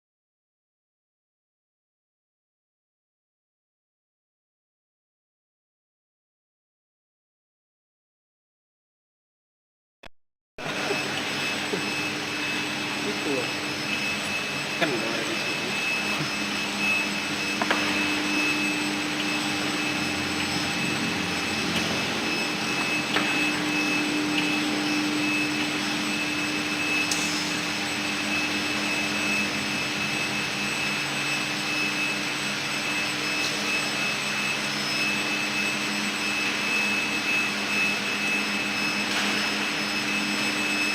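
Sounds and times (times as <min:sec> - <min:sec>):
machine noise: 0:10.6 - 0:40.9
steady whining tones: 0:10.6 - 0:40.9.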